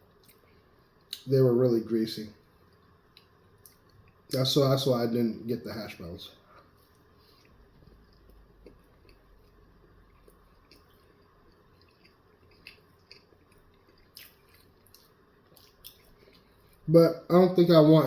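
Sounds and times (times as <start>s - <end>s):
person chewing: 6.5s - 16.9s.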